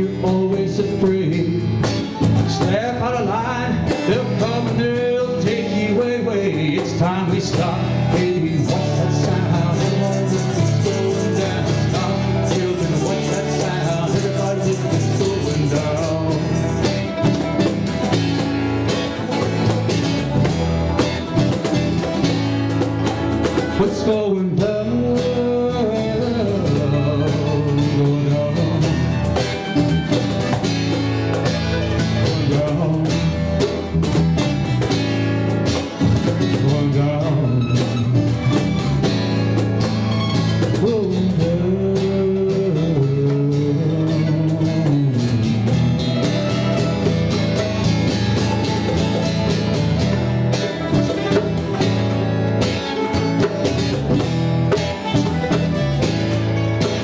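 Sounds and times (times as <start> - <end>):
lead guitar line bending pitch: 0.0 - 57.0
live band playing: 0.0 - 57.0.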